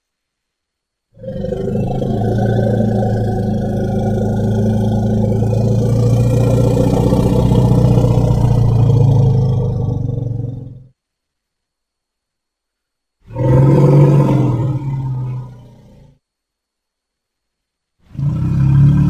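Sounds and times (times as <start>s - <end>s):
long low creature call: 1.2s - 10.9s, 13.3s - 16.1s.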